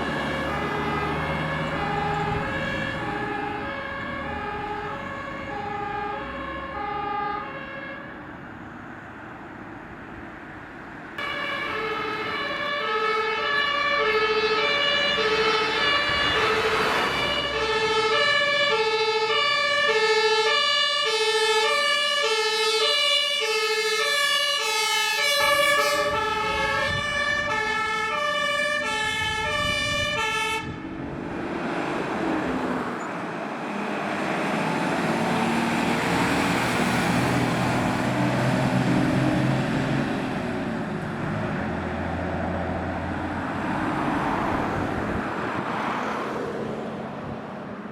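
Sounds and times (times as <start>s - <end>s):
fire engine two-tone siren: 0.0s - 8.6s, 11.2s - 31.2s, 34.4s - 40.4s
engine and tyres rushing: 0.0s - 47.9s.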